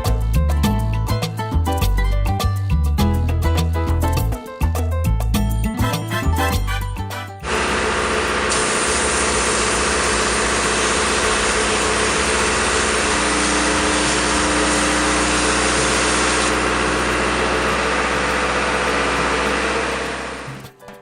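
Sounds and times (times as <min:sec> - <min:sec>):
loud even hiss: 0:07.4 - 0:17.1
engine running steadily: 0:07.4 - 0:20.7.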